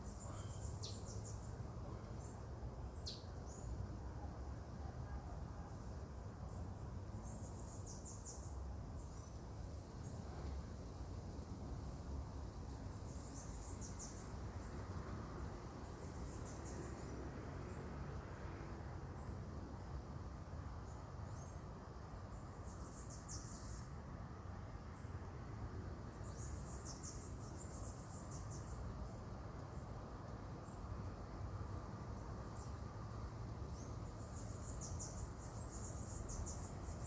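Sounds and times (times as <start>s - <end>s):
insects chirping in high trills: 32.4s - 37.0s.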